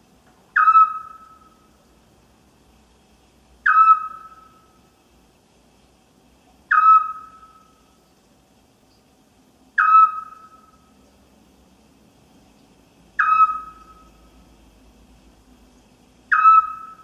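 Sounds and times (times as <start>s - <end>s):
owl whistled note: 0.6s - 1.5s, 3.7s - 4.6s, 6.7s - 7.7s, 9.8s - 10.7s, 13.2s - 14.1s, 16.3s - 17.0s.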